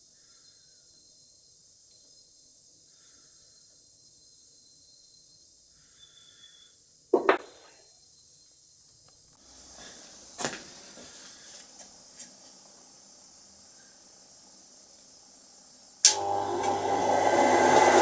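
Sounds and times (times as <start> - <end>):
sharp knocks on workbench: 7.2 - 7.6.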